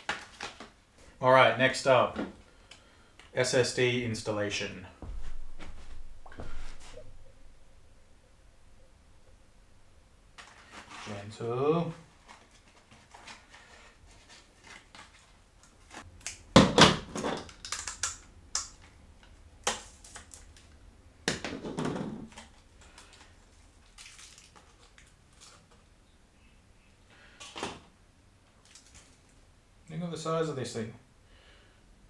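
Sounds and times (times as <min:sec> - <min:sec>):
plastic packaging crinkling: 0:12.0 - 0:16.4, 0:22.3 - 0:25.9
clicks and knocks of computer parts: 0:16.3 - 0:19.0.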